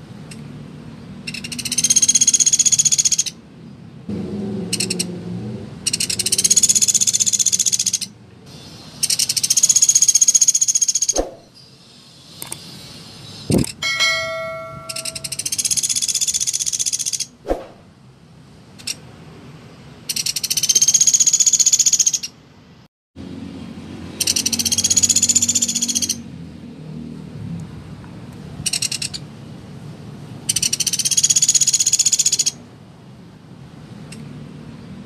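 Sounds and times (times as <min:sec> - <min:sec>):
woodpecker trilling rattle calls: 0:01.2 - 0:03.4, 0:04.8 - 0:05.1, 0:05.9 - 0:11.2, 0:13.4 - 0:17.4, 0:20.1 - 0:22.4, 0:24.2 - 0:26.2, 0:28.7 - 0:29.2, 0:30.5 - 0:32.6.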